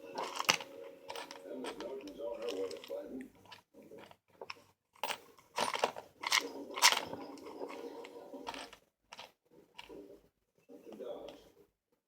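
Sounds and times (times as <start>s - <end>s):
toy train parts clicking: 0.2s - 3.6s, 4.5s - 7.8s.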